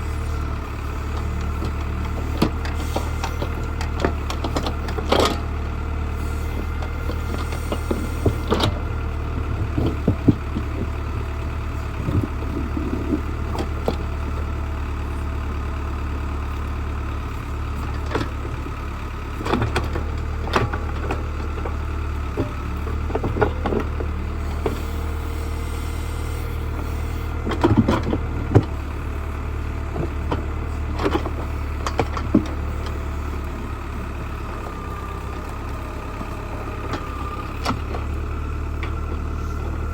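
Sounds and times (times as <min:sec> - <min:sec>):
digging knocks and clatters: 0:00.0 - 0:15.0, 0:17.6 - 0:39.9
backhoe engine running: 0:00.0 - 0:39.9.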